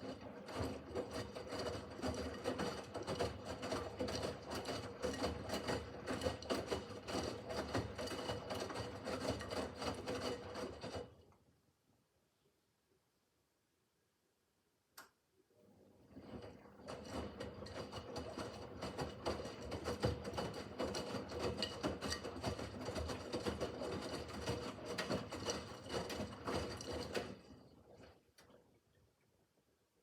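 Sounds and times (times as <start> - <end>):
washing machine drum whirring and rattling: 0.0 - 11.2, 15.9 - 28.6.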